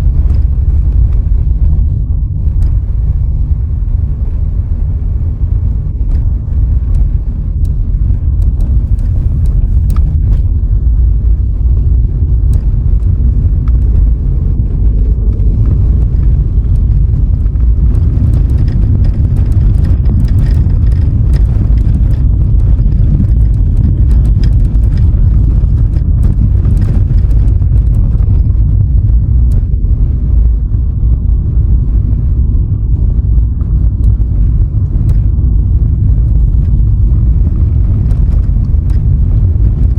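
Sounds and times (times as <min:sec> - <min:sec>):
car driving rumble: 0:00.0 - 0:39.9
small clicks and knocks: 0:14.7 - 0:28.6, 0:36.0 - 0:39.9.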